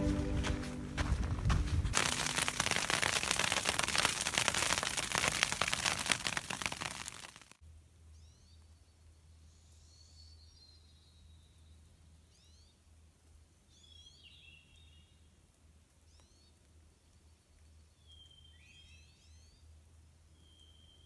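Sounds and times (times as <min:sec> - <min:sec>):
songbird chirps and whistles: 0:18.0 - 0:19.6, 0:20.4 - 0:21.0.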